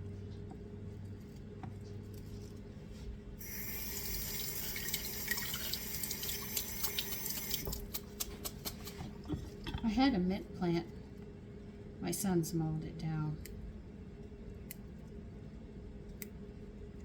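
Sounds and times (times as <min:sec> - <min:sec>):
water running into sink: 0:03.4 - 0:08.0.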